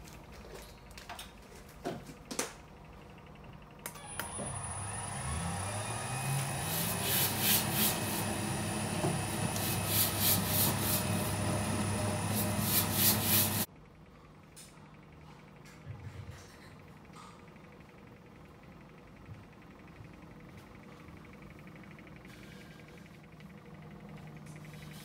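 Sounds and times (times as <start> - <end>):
mixer motor hum: 2.6 - 13.7.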